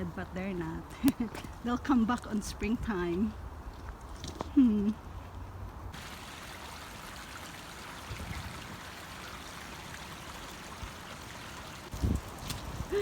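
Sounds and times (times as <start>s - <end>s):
stream running water: 5.9s - 13.0s.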